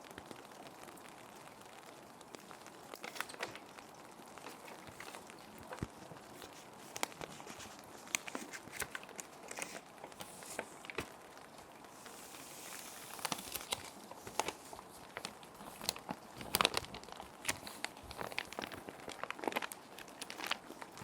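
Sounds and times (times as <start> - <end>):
plastic sheets crinkling: 0.0 - 21.0
rain hiss: 0.0 - 21.0.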